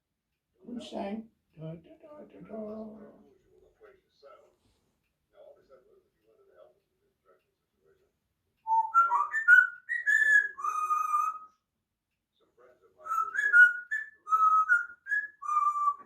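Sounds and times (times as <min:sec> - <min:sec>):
parrot whistling a tune: 0:08.6 - 0:11.6, 0:13.0 - 0:16.0.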